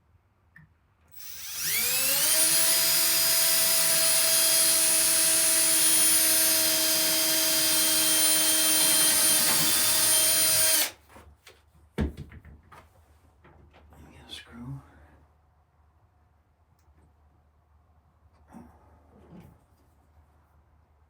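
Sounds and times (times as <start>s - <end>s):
electric drill drilling: 1.1s - 11.0s.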